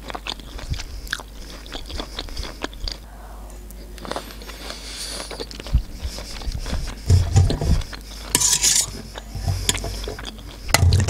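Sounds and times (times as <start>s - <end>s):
chewing food: 0.0s - 3.1s, 4.0s - 11.0s
metal fork scraping on tray: 7.1s - 11.0s.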